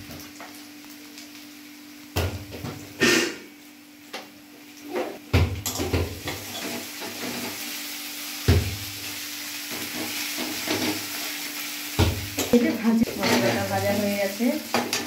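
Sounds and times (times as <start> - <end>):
onion sizzling in oil: 0.0 - 15.0
spatula scraping a pan: 6.3 - 7.8, 9.7 - 11.4, 13.0 - 14.0.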